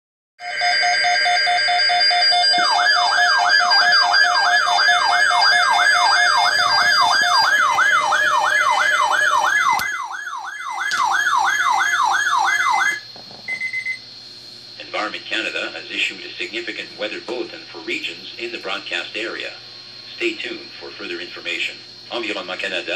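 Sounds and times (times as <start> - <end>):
warbling alarm tone: 0.4 - 14.0
short beeps: 13.5 - 14.0.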